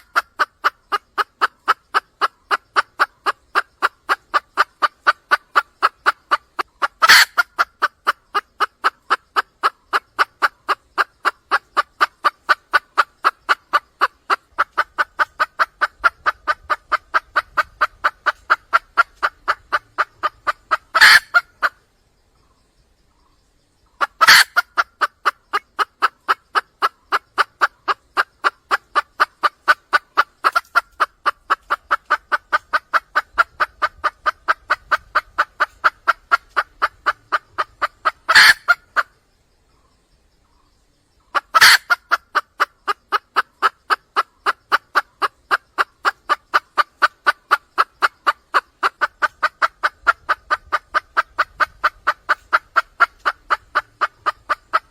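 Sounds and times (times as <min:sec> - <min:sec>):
junglefowl hen clucking: 0:00.0 - 0:54.9.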